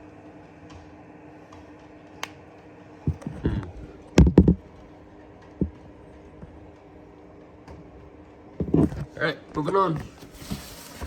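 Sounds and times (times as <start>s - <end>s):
knocks and clunks of handling: 3.1s - 4.8s, 8.6s - 10.8s.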